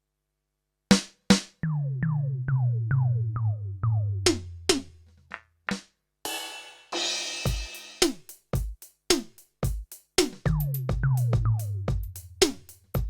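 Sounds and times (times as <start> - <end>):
cymbal crash: 6.3 - 8.1.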